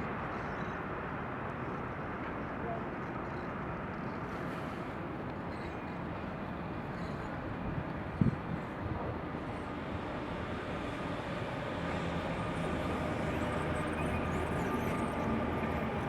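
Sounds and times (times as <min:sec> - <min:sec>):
train rumbling: 0:05.9 - 0:16.0.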